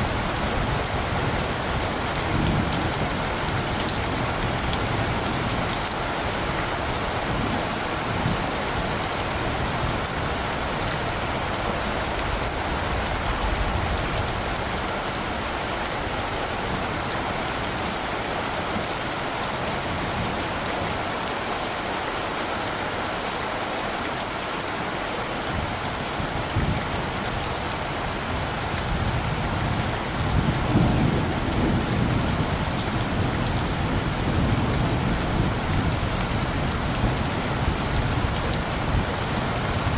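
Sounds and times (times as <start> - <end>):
rain falling: 0.0 - 39.9
light thunder rumble: 25.5 - 39.9.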